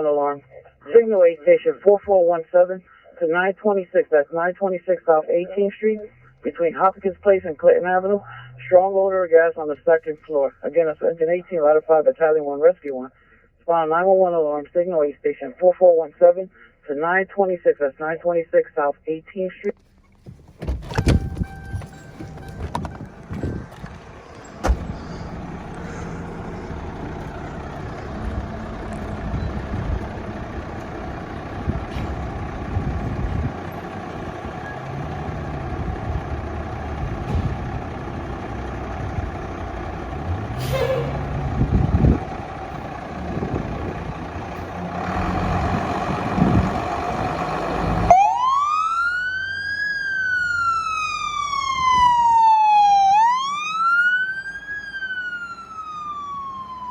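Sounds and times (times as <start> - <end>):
fire engine rumbling: 0.0 - 14.9, 19.1 - 56.9
siren wailing: 21.0 - 37.2, 47.8 - 56.9.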